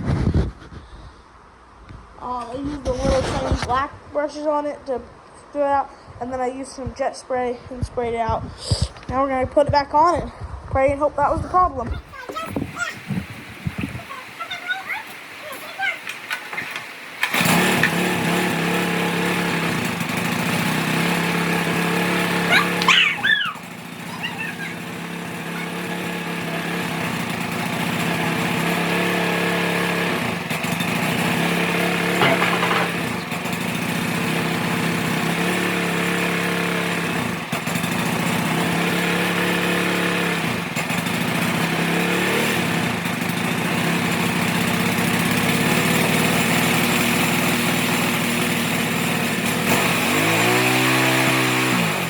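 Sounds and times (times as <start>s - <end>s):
go-kart engine buzzing: 12.0s - 52.0s.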